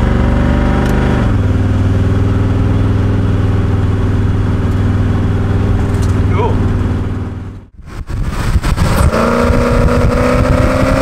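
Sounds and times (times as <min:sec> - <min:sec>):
car engine running inside cabin: 0:00.0 - 0:07.8.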